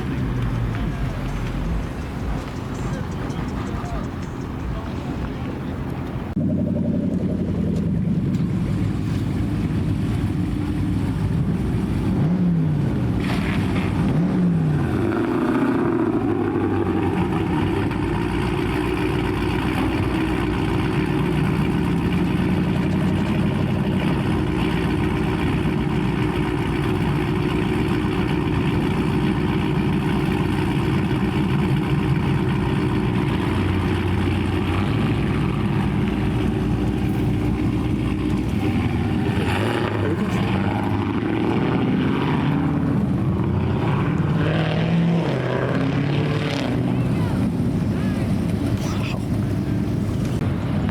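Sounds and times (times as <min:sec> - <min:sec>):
car engine running and revving: 0:00.0 - 0:50.9.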